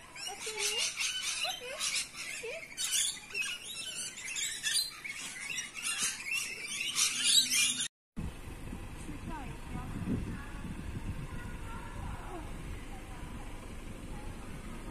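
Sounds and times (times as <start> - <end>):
lorikeets chattering and screeching: 0.0 - 7.9
low rising squeaks: 0.0 - 7.9.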